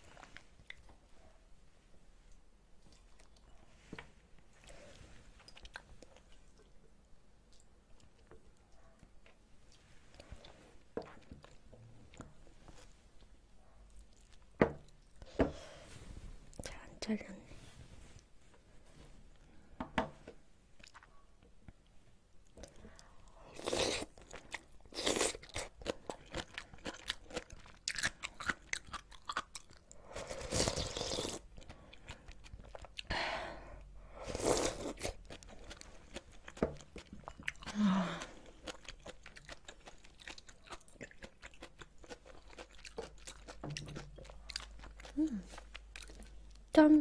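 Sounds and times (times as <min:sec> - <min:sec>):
chewing crunchy food: 0:04.5 - 0:06.8, 0:07.4 - 0:15.2, 0:22.5 - 0:33.1, 0:34.4 - 0:46.7.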